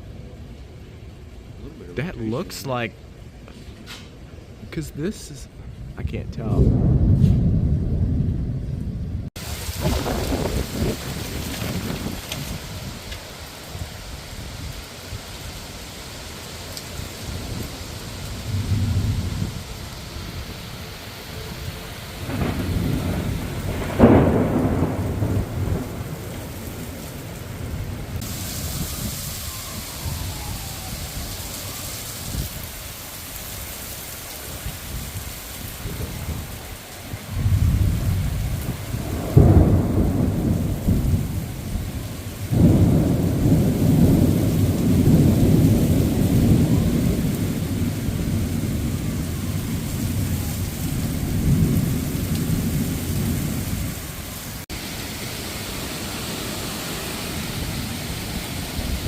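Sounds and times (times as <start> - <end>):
rain hissing: 0.9 - 59.0
rolling thunder rumbles: 5.5 - 59.0
thunderclap: 5.7 - 13.3, 17.2 - 20.6, 21.6 - 32.6, 34.9 - 54.8.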